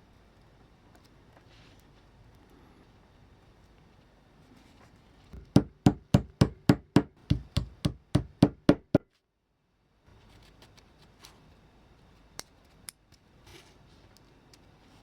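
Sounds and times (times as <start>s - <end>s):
rapid sharp knocks: 5.4s - 9.0s.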